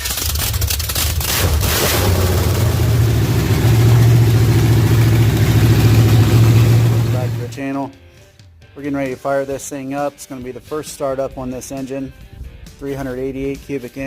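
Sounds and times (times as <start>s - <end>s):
car engine fast idle: 1.3s - 7.5s.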